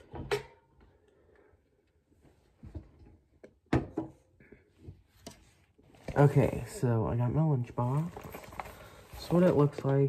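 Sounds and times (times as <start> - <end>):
objects being handled: 7.8 - 10.0.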